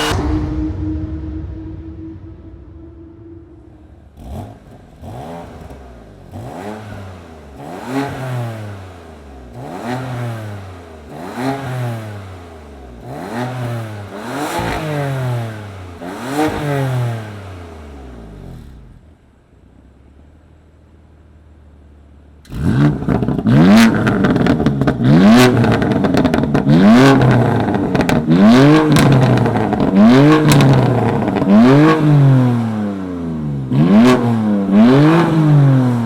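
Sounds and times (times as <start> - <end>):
car engine revving: 0.0 - 19.2, 22.4 - 36.0
exhaust pops and crackles: 22.4 - 32.0.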